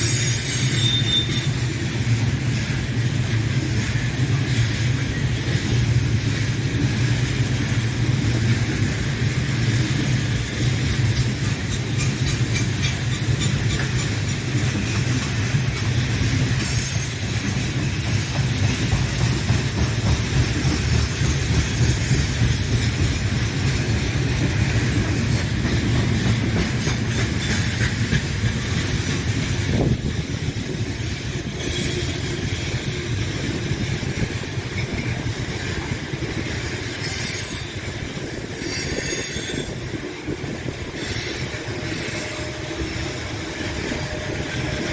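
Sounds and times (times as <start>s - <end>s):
wheel squeals: 0.0s - 1.7s, 38.5s - 40.0s
train wheels rumbling on rail: 0.0s - 44.9s.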